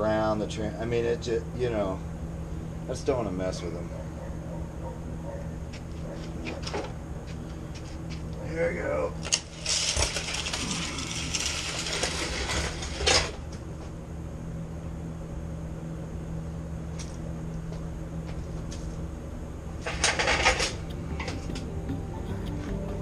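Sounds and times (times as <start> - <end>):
steady low hum: 0.0 - 8.4, 13.8 - 23.0.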